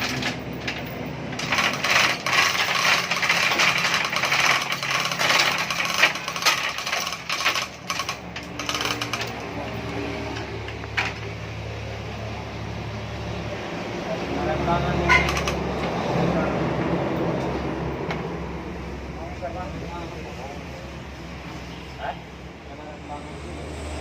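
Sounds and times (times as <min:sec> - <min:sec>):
metallic rattling and clattering: 0:00.0 - 0:09.7, 0:15.1 - 0:15.6.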